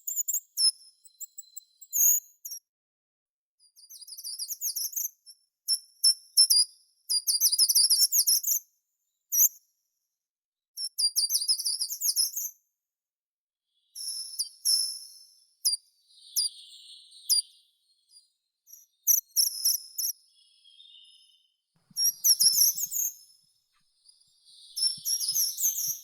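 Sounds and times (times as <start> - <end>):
songbird singing: 16.0 - 26.0.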